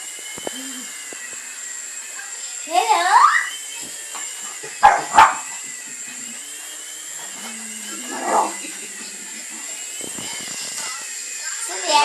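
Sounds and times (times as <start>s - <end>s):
model helicopter motor whine: 0.0s - 12.0s
dog barking: 4.8s - 5.5s.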